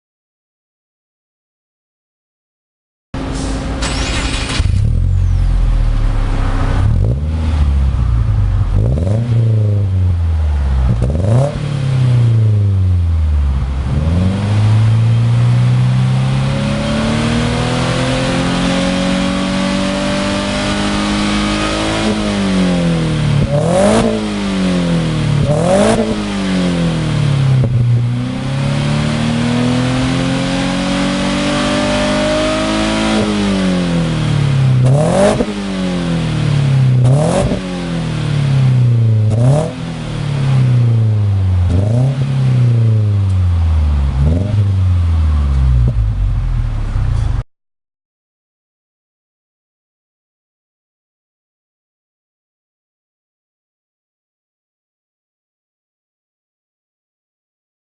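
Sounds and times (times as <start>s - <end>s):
car engine exhaust revving: 3.2s - 47.4s.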